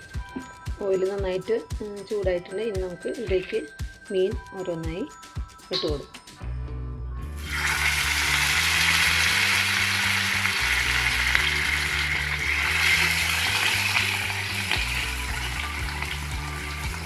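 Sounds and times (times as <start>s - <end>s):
fish frying in hot oil: 7.4s - 17.0s.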